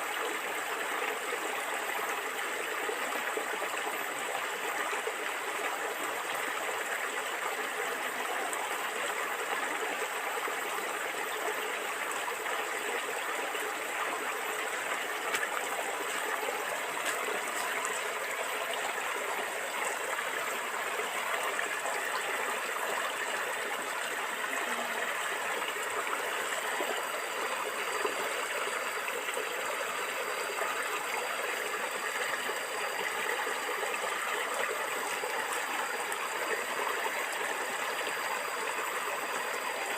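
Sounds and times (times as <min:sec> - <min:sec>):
stream gurgling over stones: 0:00.0 - 0:39.9.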